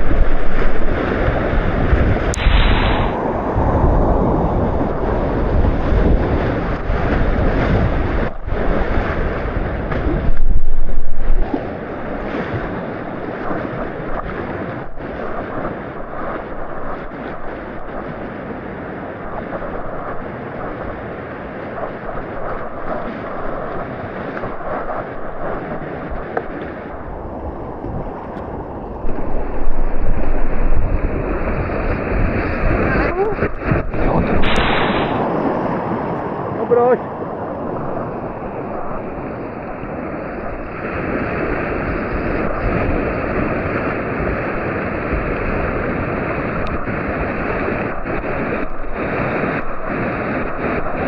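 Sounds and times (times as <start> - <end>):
whitewater rapids roaring: 0.0 - 10.3, 22.6 - 51.0
wind noise on microphone: 0.0 - 51.0.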